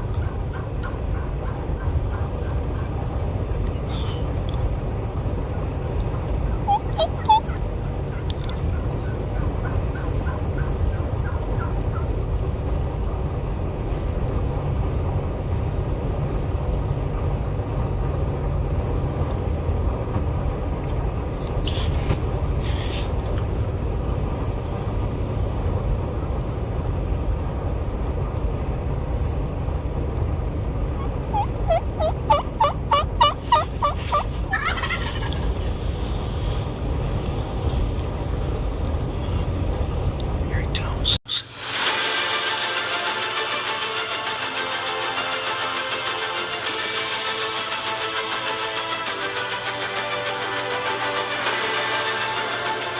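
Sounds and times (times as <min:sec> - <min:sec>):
low wind rumble: 0:00.0 - 0:52.9
turkey gobbling: 0:06.5 - 0:12.1, 0:31.0 - 0:35.5.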